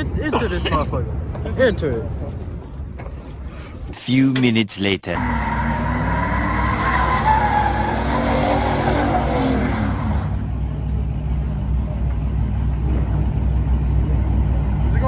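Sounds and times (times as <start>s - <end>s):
car engine revving: 5.2s - 15.0s
low engine rumble: 9.9s - 15.0s.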